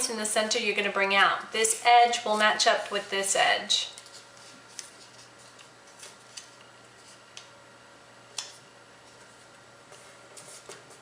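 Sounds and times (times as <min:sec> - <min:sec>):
paper crackling and tapping: 0:03.9 - 0:07.5.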